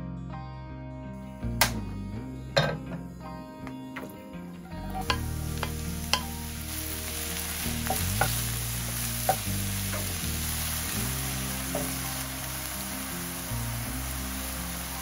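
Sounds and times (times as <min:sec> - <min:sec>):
mushrooms sizzling in oil: 0:04.0 - 0:15.0
spatula clicking against pan: 0:05.0 - 0:06.4.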